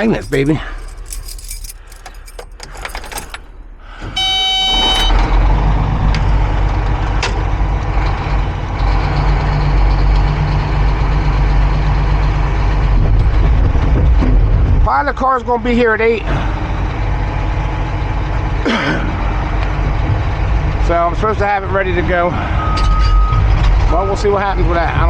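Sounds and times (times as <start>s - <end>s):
diesel engine starting and running: 0.0s - 25.0s
brief tone: 4.2s - 5.2s, 22.6s - 23.4s.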